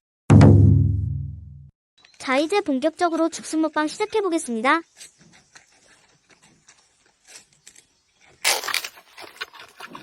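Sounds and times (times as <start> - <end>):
panda chewing bamboo: 8.4 - 10.0.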